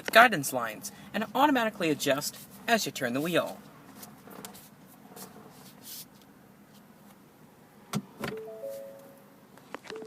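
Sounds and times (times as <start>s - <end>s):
car electronic chime: 8.3s - 10.0s.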